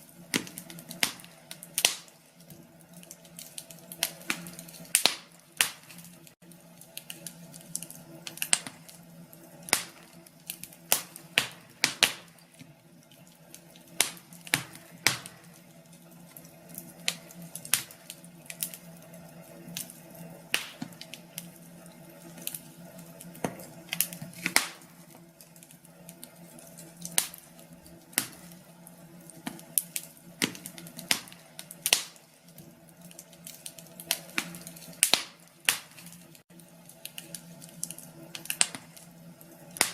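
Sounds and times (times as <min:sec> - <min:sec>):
wood fire crackling in fireplace: 0:00.0 - 0:39.9.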